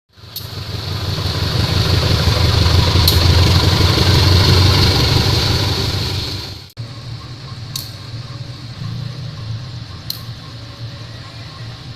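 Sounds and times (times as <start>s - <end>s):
train rumbling past: 0.1s - 11.9s
train hiss: 0.2s - 7.5s.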